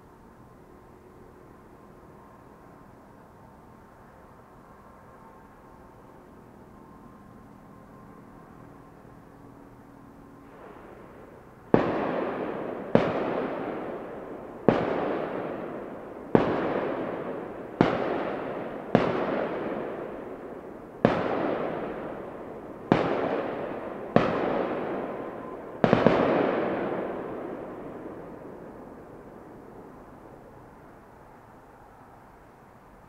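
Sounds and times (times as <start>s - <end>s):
fireworks bangs: 10.5s - 29.0s.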